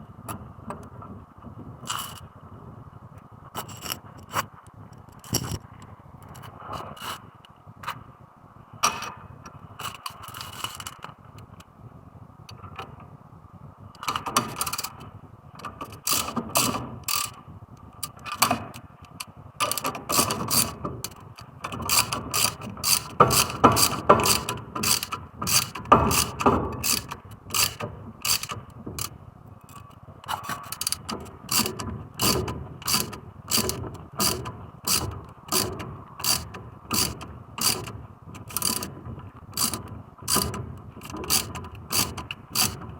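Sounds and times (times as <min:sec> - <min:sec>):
socket ratchet clicking: 0:01.9 - 0:02.2, 0:14.0 - 0:15.0, 0:15.8 - 0:17.4, 0:18.0 - 0:18.8, 0:19.6 - 0:29.1, 0:29.7 - 0:38.9, 0:39.5 - 0:42.8.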